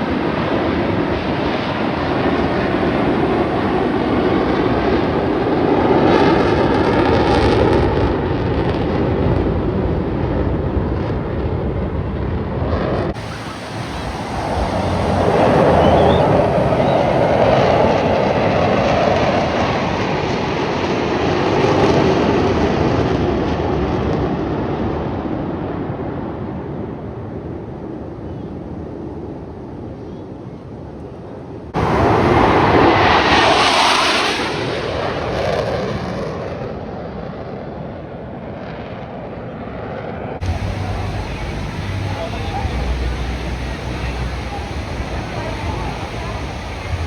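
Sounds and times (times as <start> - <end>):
jets flying past: 0.0 - 9.4, 12.4 - 23.1, 31.8 - 47.0.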